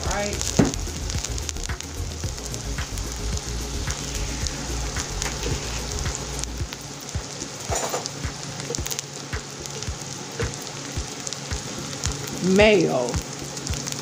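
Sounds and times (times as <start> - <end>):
onions sizzling in hot oil: 0.0 - 14.0
small crackling pops: 0.0 - 14.0.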